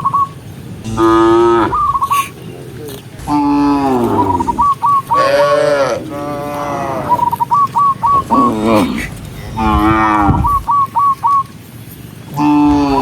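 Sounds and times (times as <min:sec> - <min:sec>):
quick chirping notes: 0:00.0 - 0:02.5, 0:07.1 - 0:11.5
cows mooing: 0:00.8 - 0:02.3, 0:03.2 - 0:10.7, 0:12.4 - 0:13.0.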